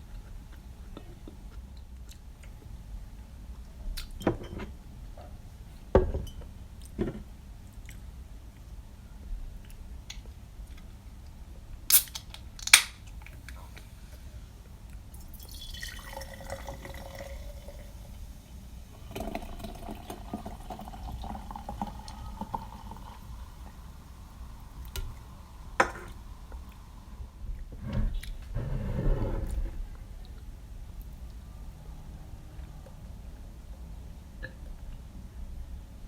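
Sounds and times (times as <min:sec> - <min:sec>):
drink pouring into a glass: 0:15.1 - 0:18.3, 0:19.0 - 0:25.2.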